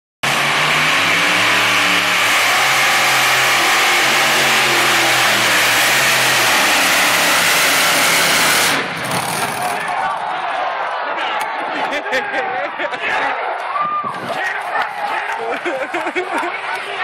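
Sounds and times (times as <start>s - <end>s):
tractor engine at high revs: 0.2s - 9.9s.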